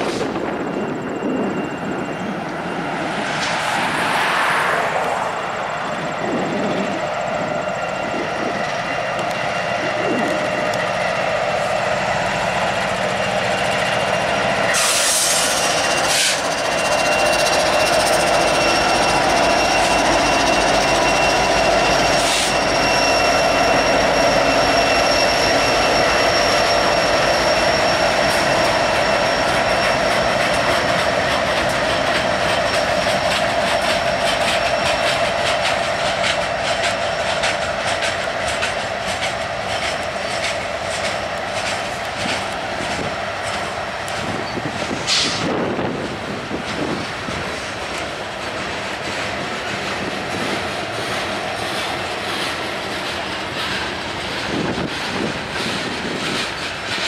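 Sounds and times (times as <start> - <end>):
high-pitched wheel squeal: 0.0 - 57.0
locomotive engine drone: 0.0 - 57.0
rolling steel wheels: 4.1 - 57.0
wheels clicking over rail joints: 27.9 - 57.0.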